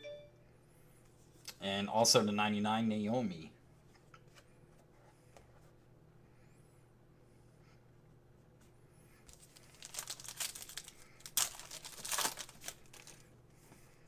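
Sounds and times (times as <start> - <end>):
wrapper crinkling and tearing: 9.3 - 13.2.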